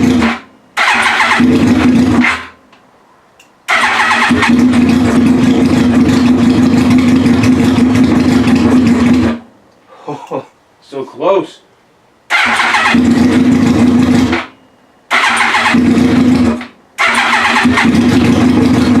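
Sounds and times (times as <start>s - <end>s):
motorcycle electric starter cranking: 0.0s - 2.5s, 3.7s - 9.4s, 12.3s - 14.5s, 15.1s - 19.0s.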